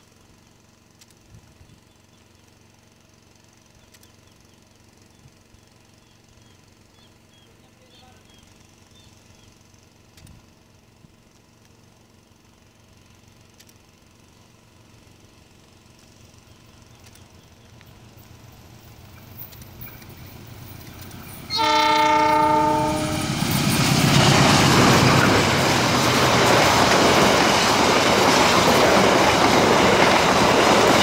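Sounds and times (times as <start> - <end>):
passenger train rumble: 16.4 - 31.0.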